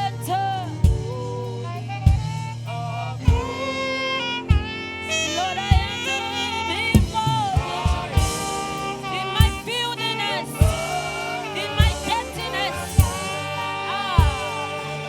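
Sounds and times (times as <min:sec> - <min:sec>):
lead melody with sliding notes: 0:00.0 - 0:15.0
sustained keyboard chords: 0:00.0 - 0:15.0
low kick drum beat: 0:00.8 - 0:02.6, 0:03.3 - 0:03.7, 0:04.5 - 0:04.8, 0:05.7 - 0:06.1, 0:07.0 - 0:09.8, 0:10.6 - 0:11.2, 0:11.8 - 0:12.3, 0:12.9 - 0:13.4, 0:14.2 - 0:14.8.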